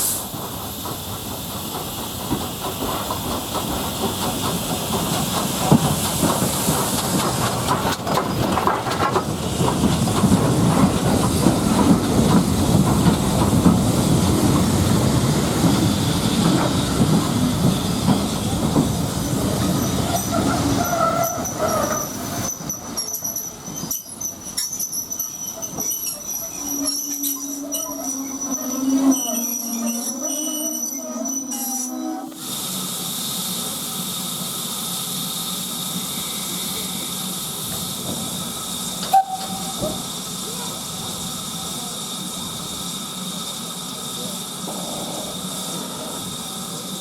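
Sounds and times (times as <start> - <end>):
train wheels clickety-clack: 0.0 - 29.2, 35.5 - 47.0
steam hissing: 0.0 - 47.0
high squealing tones: 20.2 - 32.4.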